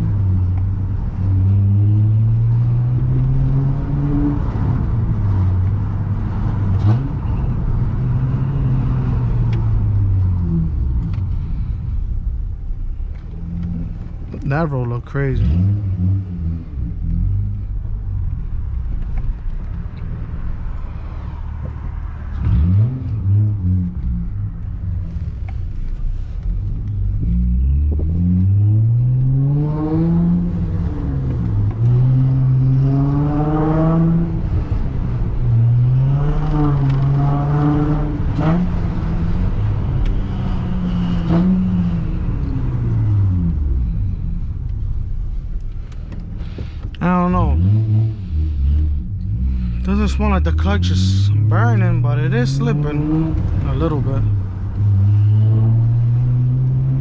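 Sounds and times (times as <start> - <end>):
car engine revving through gears: 0.0 - 11.2, 15.4 - 17.7, 21.6 - 25.7, 26.4 - 44.8, 46.1 - 57.0
road rumble: 0.0 - 57.0.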